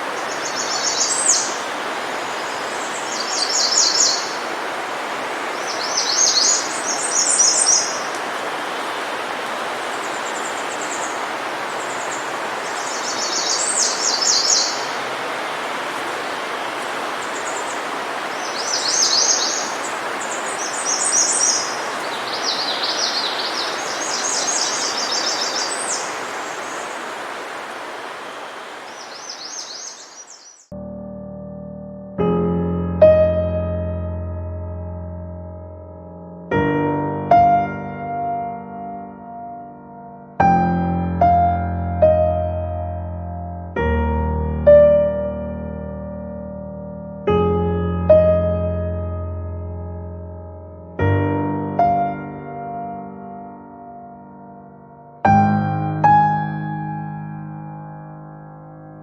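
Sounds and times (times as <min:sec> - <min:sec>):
bird singing high trills: 0:00.1 - 0:04.5, 0:05.5 - 0:08.1, 0:11.8 - 0:15.0, 0:17.2 - 0:27.1, 0:28.3 - 0:30.7.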